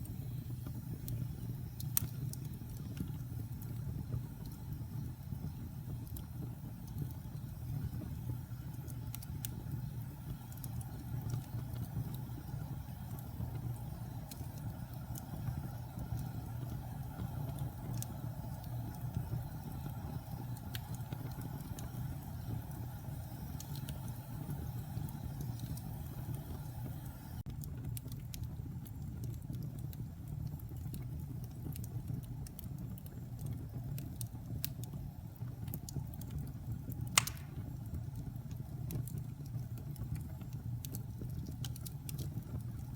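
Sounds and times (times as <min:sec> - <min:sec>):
logs crackling in fire: 0:00.0 - 0:42.9
low rumble of flames: 0:00.0 - 0:42.9
sharp pop from fire: 0:37.1 - 0:37.8.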